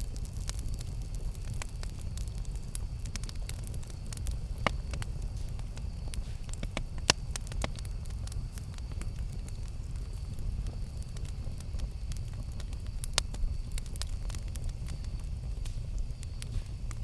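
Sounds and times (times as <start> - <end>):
campfire burning: 0.0 - 17.0
wood crackles and pops: 0.0 - 17.0.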